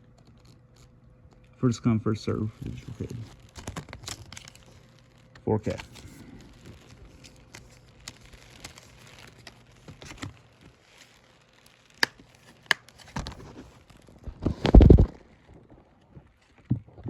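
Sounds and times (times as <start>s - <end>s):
plastic packaging crinkling: 0.0s - 16.7s.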